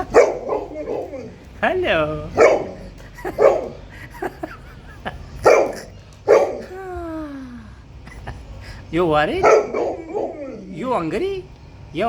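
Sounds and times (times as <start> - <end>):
dog barking: 0.0 - 1.5, 2.2 - 3.9, 5.4 - 6.7, 9.3 - 11.0
dog whining: 0.0 - 3.8, 5.4 - 7.6, 9.3 - 11.2.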